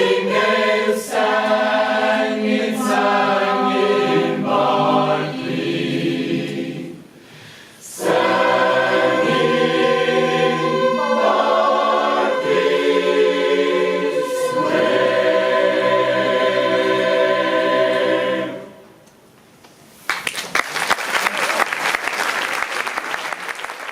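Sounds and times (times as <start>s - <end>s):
choir singing a cappella chords: 0.0s - 19.0s.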